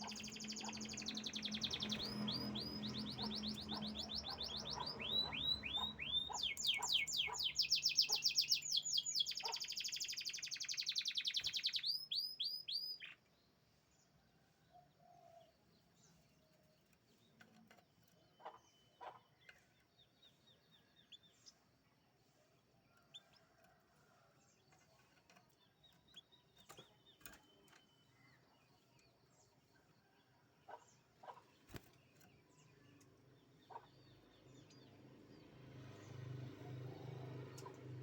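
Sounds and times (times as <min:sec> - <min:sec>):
canary chirping: 0:00.0 - 0:13.2.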